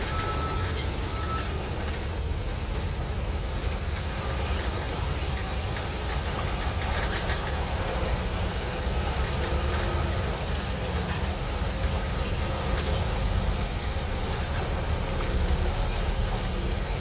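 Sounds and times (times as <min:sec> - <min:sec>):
bulldozer diesel engine rumbling: 0:00.0 - 0:17.0
steel tracks clanking: 0:00.0 - 0:17.0.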